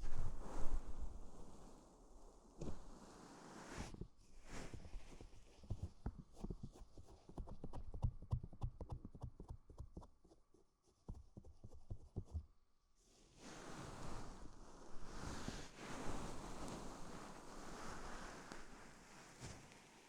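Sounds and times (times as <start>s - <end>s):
soft taps on microphone: 2.6s - 2.9s
knit fabric rustling on microphone: 13.4s - 20.0s.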